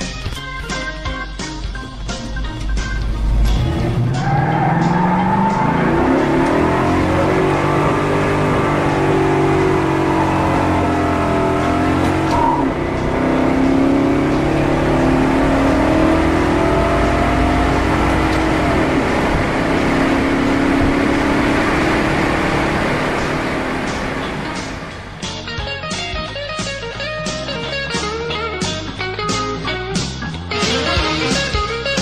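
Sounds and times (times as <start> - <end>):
car engine accelerating hard: 1.8 - 25.4.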